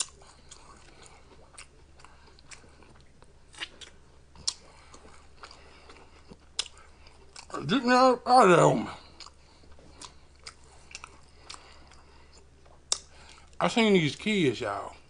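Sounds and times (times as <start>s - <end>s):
person chewing food: 0.0s - 8.1s, 8.8s - 13.6s
sharp mouth clicks: 12.8s - 13.4s.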